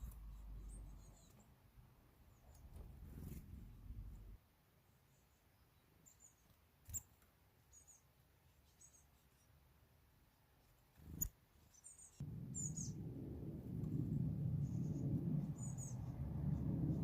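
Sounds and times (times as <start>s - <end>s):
small birds chirping: 0.0s - 17.0s
loud low rumble: 12.2s - 17.0s.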